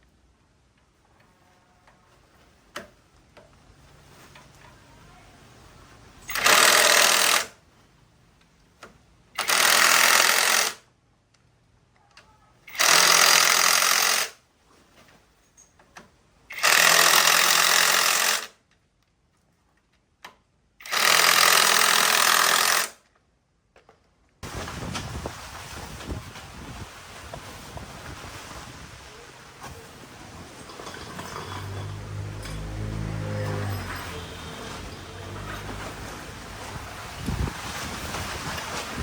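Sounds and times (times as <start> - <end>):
power tool running: 6.2 - 7.6, 9.4 - 10.8, 12.7 - 14.4, 16.5 - 18.5, 20.8 - 23.0, 30.6 - 36.8.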